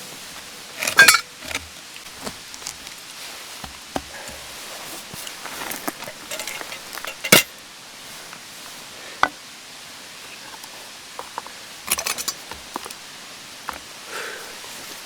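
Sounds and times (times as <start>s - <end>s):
objects knocking and clicking: 5.8s - 7.5s.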